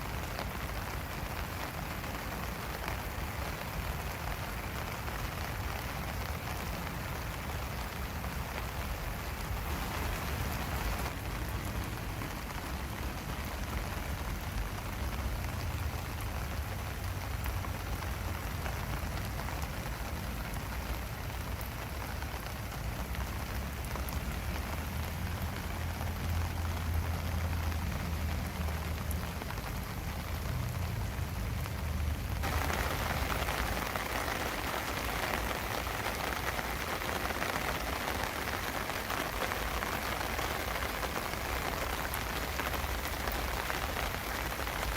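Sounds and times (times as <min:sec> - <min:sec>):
hissy patter of rain: 0:00.0 - 0:44.9
steady rain falling: 0:00.0 - 0:44.9.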